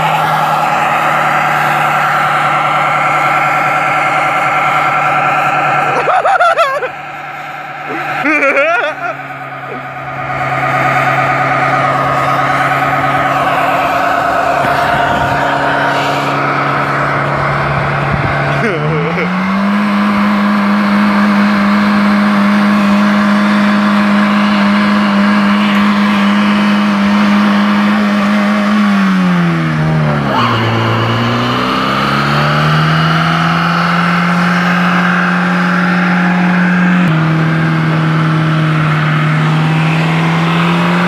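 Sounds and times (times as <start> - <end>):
car engine revving high: 0.0 - 41.0
tyres squealing: 30.2 - 33.2.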